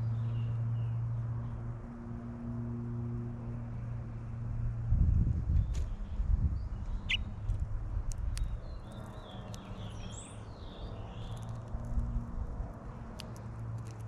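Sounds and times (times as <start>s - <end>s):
finch high squeaky chirps: 7.0s - 7.3s.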